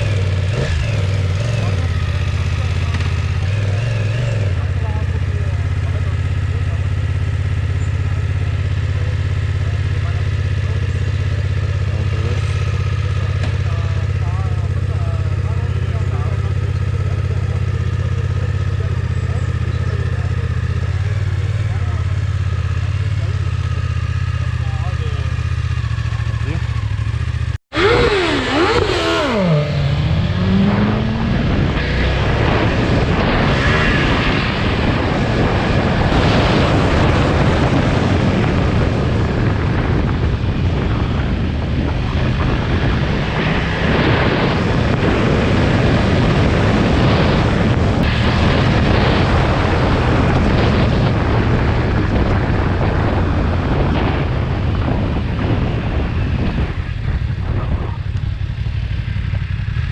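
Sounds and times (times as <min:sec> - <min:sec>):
motorcycle engine at speed: 0:00.0 - 0:59.9
wind rush: 0:27.7 - 0:59.9.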